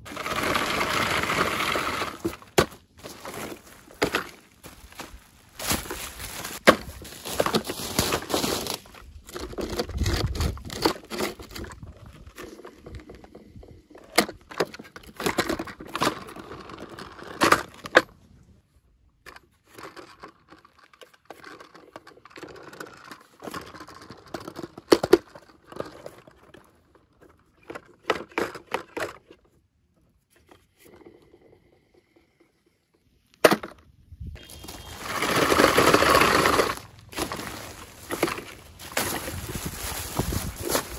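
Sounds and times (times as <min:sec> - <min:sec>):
handling clicks and knocks: 0:01.6 - 0:18.2, 0:34.6 - 0:40.9
plastic wrapping crinkling: 0:02.2 - 0:09.1, 0:34.4 - 0:40.9.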